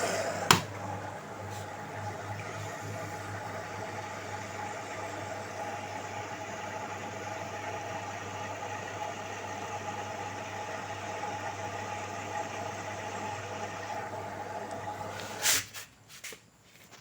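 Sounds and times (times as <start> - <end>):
washing machine running: 0.0 - 15.6.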